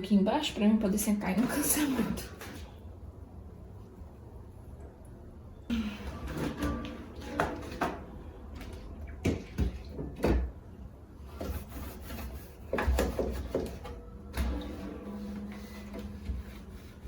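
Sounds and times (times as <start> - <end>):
knocks and clatter of shelves: 6.1 - 10.6, 11.3 - 14.8.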